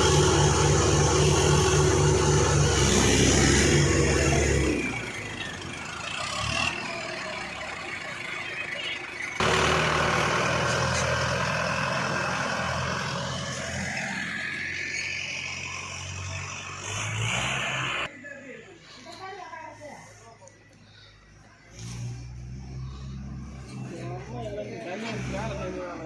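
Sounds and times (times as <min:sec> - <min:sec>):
diesel tractor engine running: 0:00.0 - 0:18.1.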